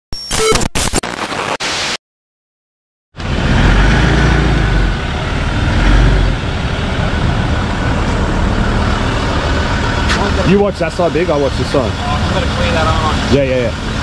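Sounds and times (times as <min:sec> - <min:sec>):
vehicle engine rumbling: 0:03.2 - 0:14.0.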